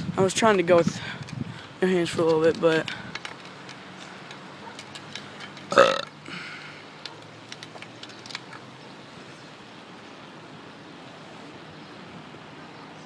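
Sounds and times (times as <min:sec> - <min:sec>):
bicycle riding rush: 0:00.0 - 0:10.2
bicycle clicks: 0:02.0 - 0:05.9, 0:07.0 - 0:08.7.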